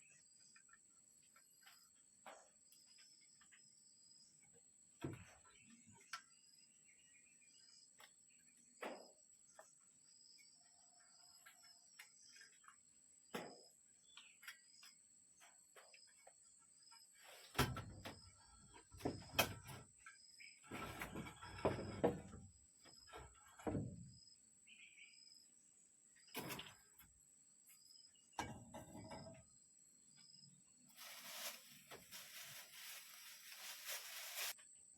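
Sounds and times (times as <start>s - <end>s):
knocks and rustling of objects: 20.6s - 24.2s, 30.9s - 34.6s
insects chirping: 29.0s - 34.9s.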